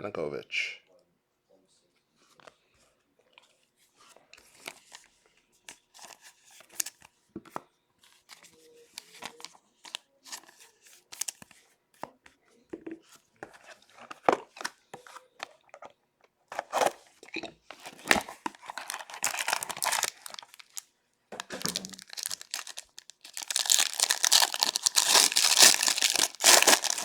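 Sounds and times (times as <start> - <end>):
card wrappers crinkling: 17.7 - 27.0
cards rasping: 18.0 - 20.8, 21.6 - 27.0.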